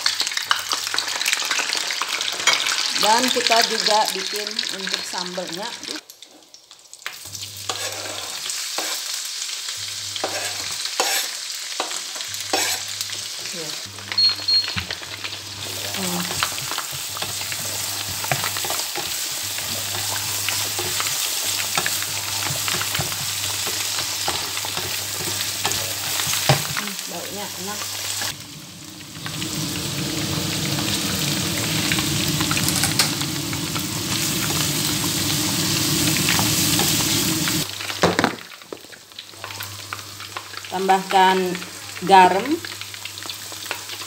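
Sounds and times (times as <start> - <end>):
aromatics sizzling in hot oil: 0.0 - 44.0
spatula scraping a pan: 7.7 - 9.2, 10.2 - 13.0.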